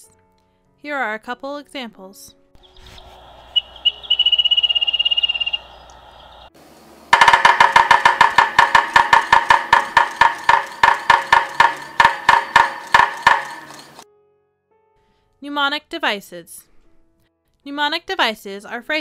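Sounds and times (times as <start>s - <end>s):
bird song with high trill: 2.6s - 6.5s
woodpecker drumming on wood: 2.6s - 6.5s, 7.1s - 14.0s.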